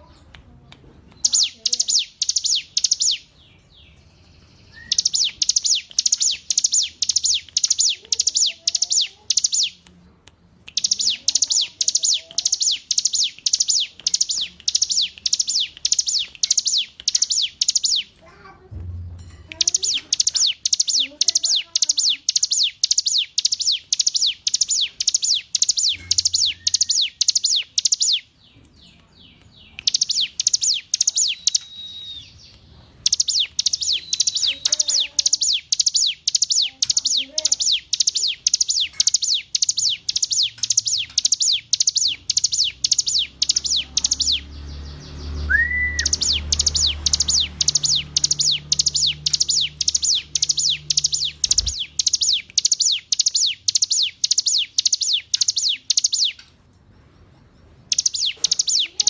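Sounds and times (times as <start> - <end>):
bird singing high rapid notes: 1.2 - 9.8, 10.7 - 18.2, 19.2 - 56.4, 57.8 - 59.0.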